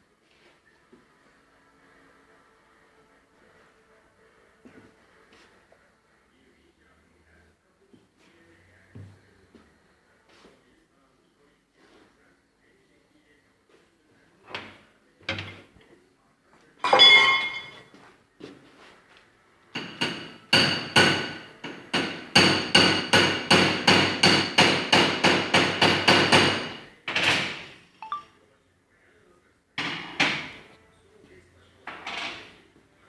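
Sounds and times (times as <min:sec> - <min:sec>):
hammer striking metal: 0:16.8 - 0:17.8, 0:19.8 - 0:26.9.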